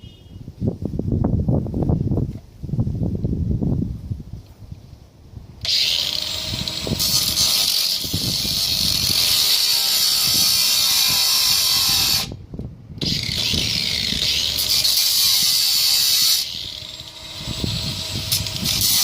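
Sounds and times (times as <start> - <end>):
angle grinder cutting metal: 5.6 - 12.4, 13.0 - 19.0.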